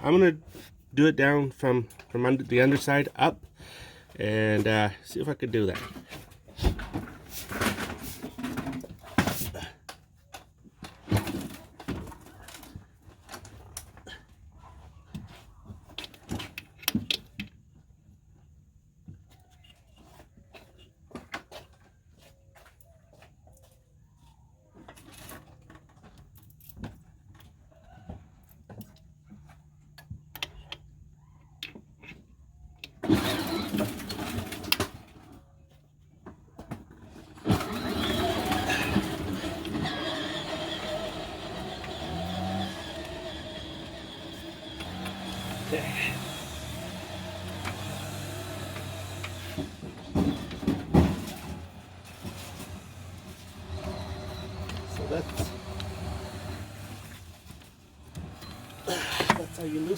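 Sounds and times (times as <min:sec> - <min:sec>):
hand tools clicking and knocking: 0:36.6 - 0:51.6
loud rough scraping rushing noise: 0:37.4 - 0:50.2
tools clanking against engine: 0:58.4 - 0:59.9.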